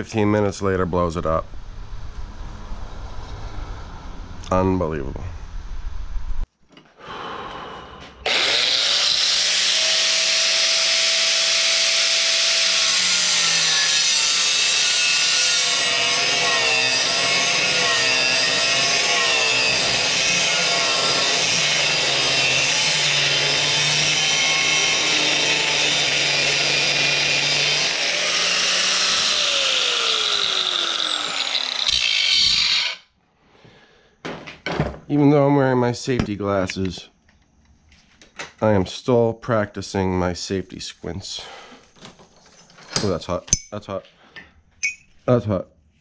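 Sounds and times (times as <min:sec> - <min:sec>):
angle grinder cutting steel: 0:08.2 - 0:33.1.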